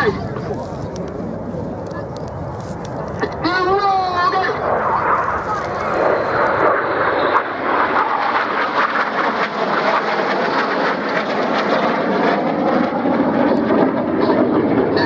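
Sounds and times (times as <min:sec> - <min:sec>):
jets flying past: 0:00.0 - 0:15.0.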